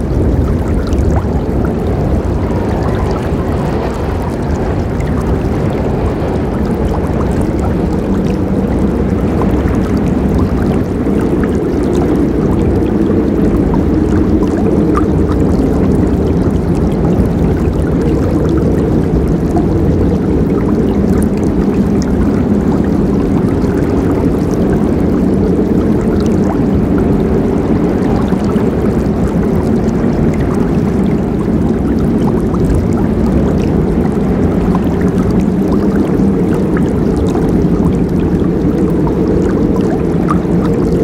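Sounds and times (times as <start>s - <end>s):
river water rushing: 0.0s - 19.6s
water splashes and gurgles: 0.0s - 41.0s.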